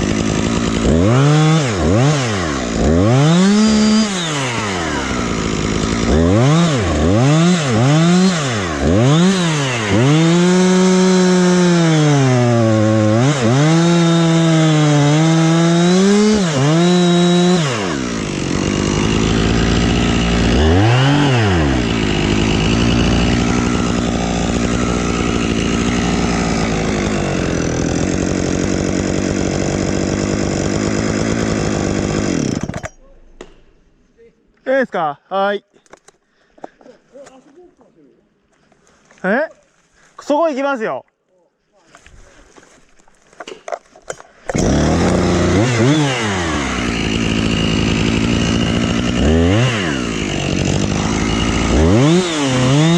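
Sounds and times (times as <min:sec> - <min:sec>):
chainsaw idling: 0:00.0 - 0:32.9, 0:44.5 - 0:52.9
chainsaw revving and cutting wood: 0:00.0 - 0:32.9, 0:44.4 - 0:52.9.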